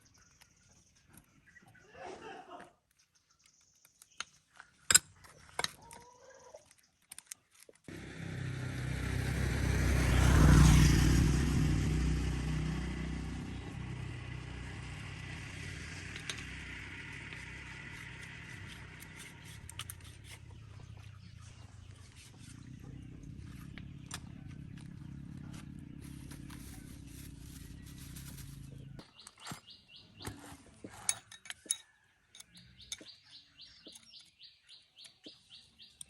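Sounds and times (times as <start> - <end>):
vehicle engine passing by: 7.9 - 29.0.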